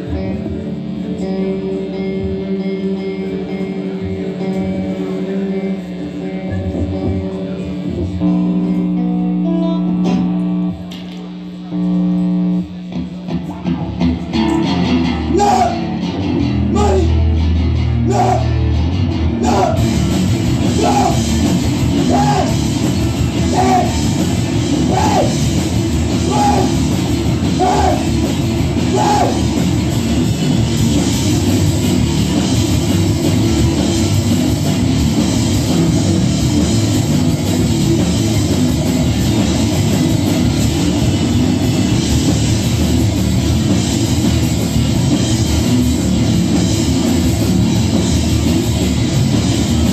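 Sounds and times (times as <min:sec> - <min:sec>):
guitar held notes: 0:00.0 - 0:30.6
rock band playing live: 0:00.0 - 0:49.9.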